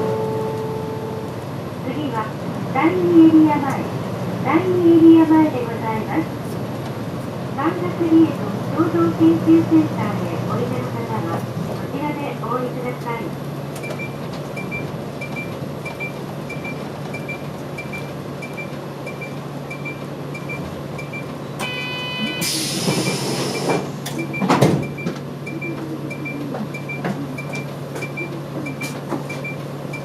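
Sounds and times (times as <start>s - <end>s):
bus engine idling hum: 0.0s - 30.0s
door chime: 21.6s - 22.5s
pneumatic door thump: 22.3s - 25.2s.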